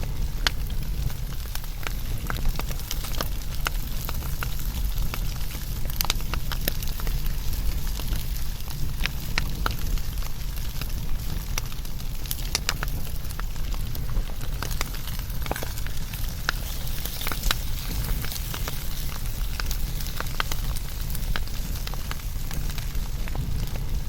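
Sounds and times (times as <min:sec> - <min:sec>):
wood crackling and popping: 0:00.0 - 0:24.0
wood fire rumbling: 0:00.0 - 0:24.0.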